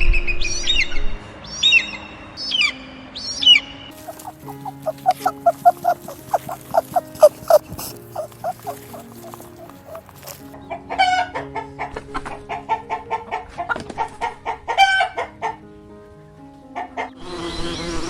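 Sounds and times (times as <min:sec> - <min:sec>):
background music with held notes: 0:00.0 - 0:18.0
chickens clucking: 0:04.0 - 0:10.6.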